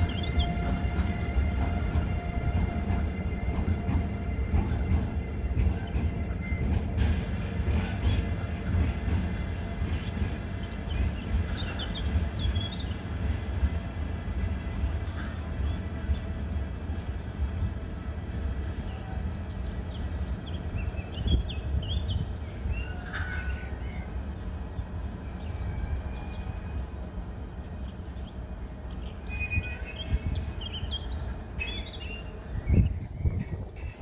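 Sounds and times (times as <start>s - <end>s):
birds chirping: 0.0s - 2.7s, 18.7s - 33.9s
heavy train knocks: 0.0s - 18.8s
freight train wheels rumbling: 0.0s - 34.0s.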